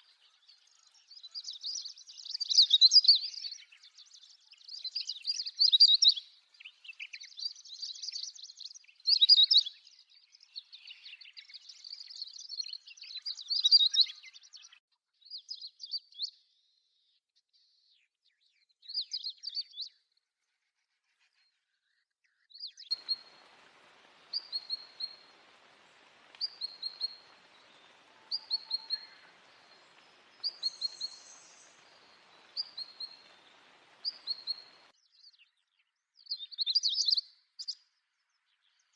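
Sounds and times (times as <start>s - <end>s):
small songbirds twittering: 0.0s - 16.4s, 21.1s - 38.9s
bird repeating short high call: 22.9s - 34.9s
faint hiss: 22.9s - 34.9s.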